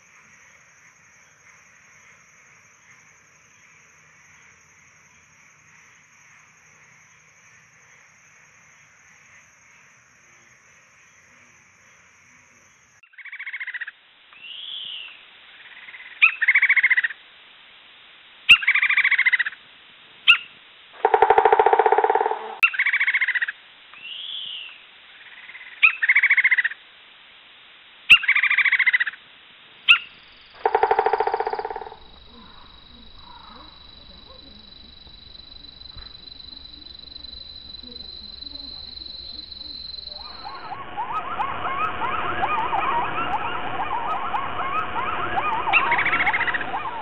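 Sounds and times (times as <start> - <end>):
faint high whine: 29.9 - 47.0.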